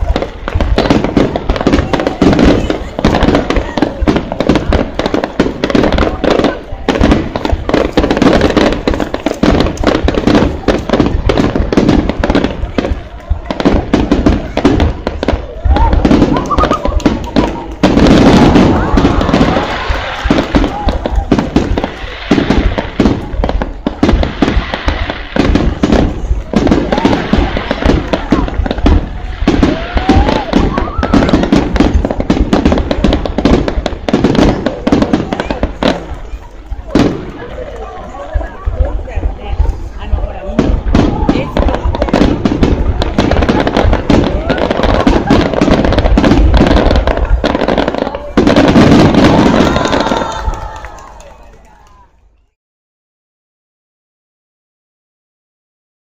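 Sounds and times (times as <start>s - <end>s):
fireworks bangs and crackles: 0.0s - 52.6s.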